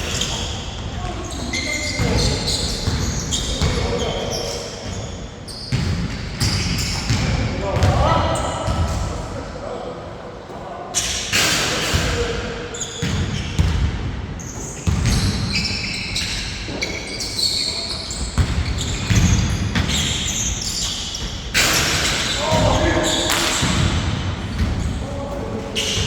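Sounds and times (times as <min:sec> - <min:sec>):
shoe squeaks on court: 0:00.0 - 0:07.3, 0:12.8 - 0:13.8, 0:14.4 - 0:23.8
basketball bouncing: 0:13.0 - 0:14.0, 0:14.8 - 0:15.6.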